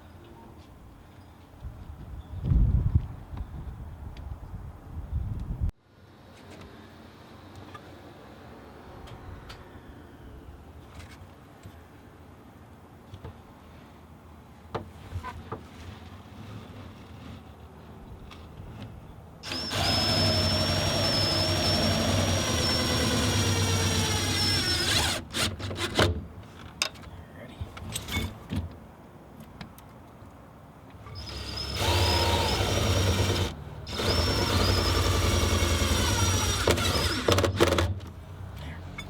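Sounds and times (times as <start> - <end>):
electric drill whining: 19.4 - 25.6, 31.1 - 37.9.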